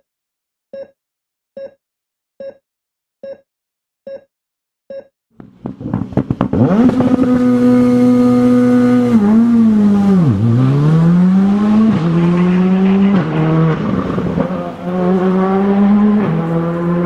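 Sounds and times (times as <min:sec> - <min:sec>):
rally car engine revving: 0:05.4 - 0:17.0.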